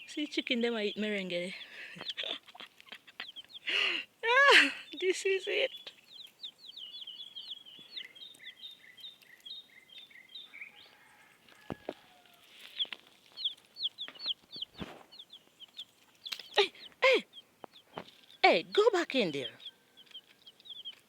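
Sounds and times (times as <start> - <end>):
baby chicks peeping: 0.0 - 21.0.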